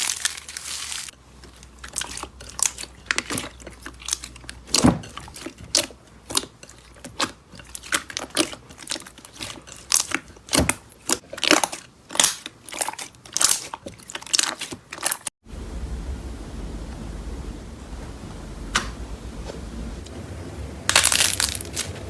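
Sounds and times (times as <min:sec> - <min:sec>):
slime crackling and popping: 0:11.1 - 0:15.2, 0:20.9 - 0:21.9.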